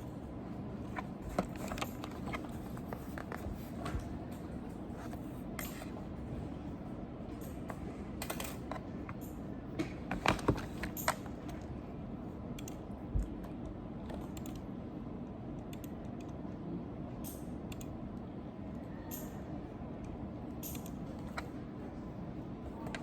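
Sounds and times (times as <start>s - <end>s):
low background hum: 0.0s - 23.0s
computer keyboard typing: 12.5s - 12.8s, 14.0s - 14.7s.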